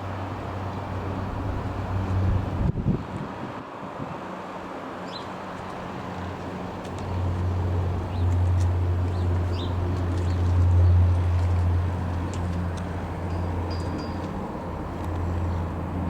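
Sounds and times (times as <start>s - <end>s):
turboprop aircraft engines droning: 0.0s - 16.0s
birds chirping: 8.0s - 11.4s.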